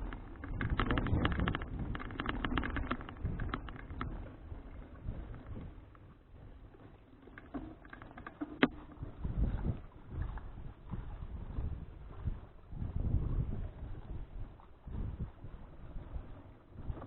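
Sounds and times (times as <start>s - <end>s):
bicycle rattling clicks: 0.0s - 4.8s
wind rumble on microphone: 0.0s - 17.0s.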